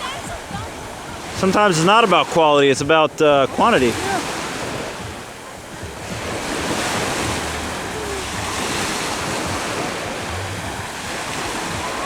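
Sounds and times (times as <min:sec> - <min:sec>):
wind blowing across microphone: 0:00.0 - 0:12.0.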